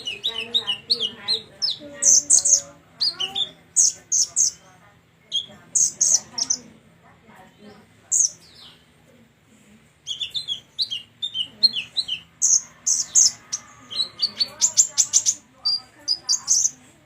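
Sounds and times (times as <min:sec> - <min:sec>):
songbird chirping and whistling: 0:00.0 - 0:06.7, 0:10.0 - 0:16.9.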